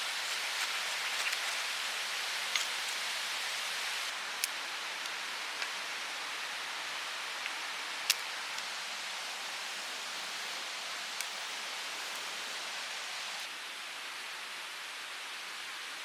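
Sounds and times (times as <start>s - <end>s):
mountain stream rushing: 0.0s - 13.5s
sharp ticks: 4.1s - 13.1s.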